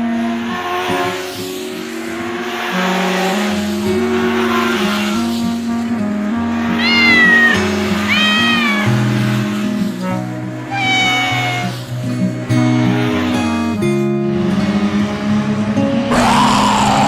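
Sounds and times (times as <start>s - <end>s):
cartoon kitten meowing: 6.8s - 9.0s, 10.7s - 11.8s.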